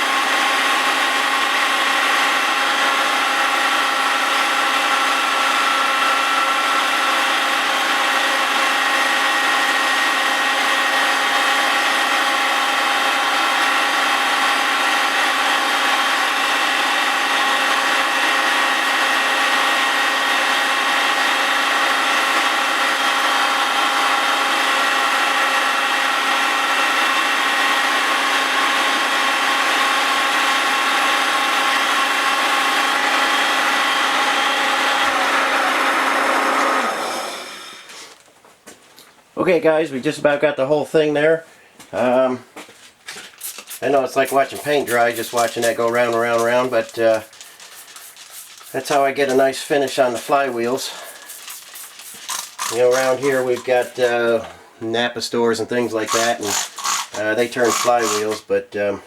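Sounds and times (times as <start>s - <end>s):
grinding wheel on metal: 43.3s - 54.5s, 55.7s - 58.5s.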